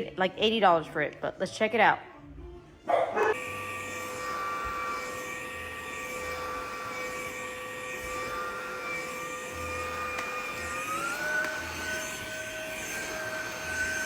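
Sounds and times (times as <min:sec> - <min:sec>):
vacuum cleaner motor whine: 0:03.2 - 0:14.0.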